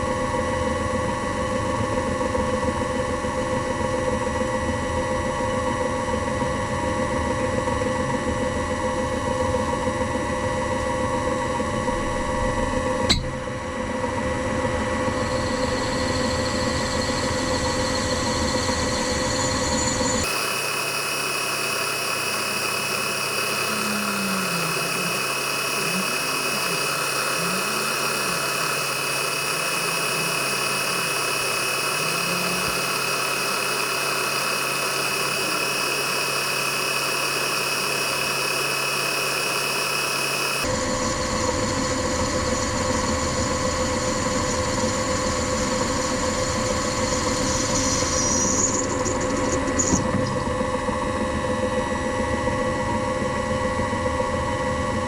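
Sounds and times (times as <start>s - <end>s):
machine tool motor humming: 20.2s - 40.7s.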